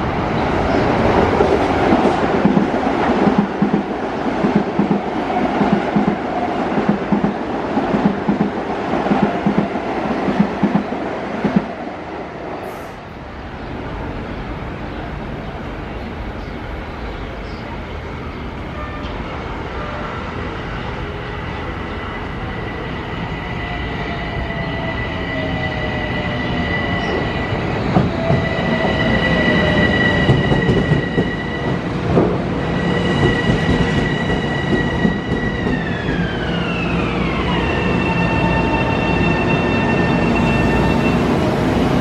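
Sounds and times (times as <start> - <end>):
train wheels rumbling on rails: 0.0 - 11.8, 21.0 - 42.0.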